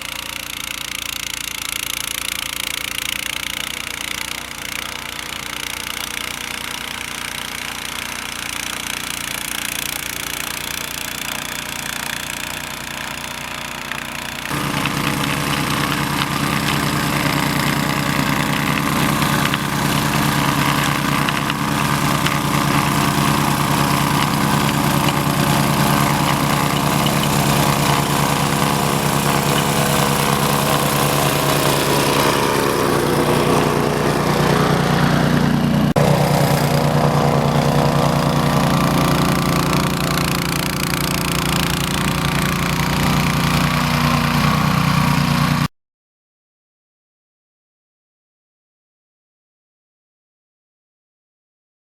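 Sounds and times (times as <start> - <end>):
snowblower engine running: 0.0 - 45.7.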